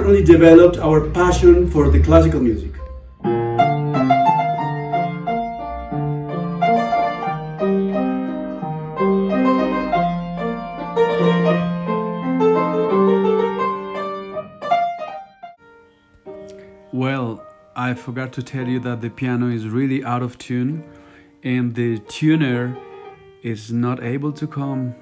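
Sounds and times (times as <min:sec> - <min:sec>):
out of tune piano melody: 0:00.0 - 0:25.0.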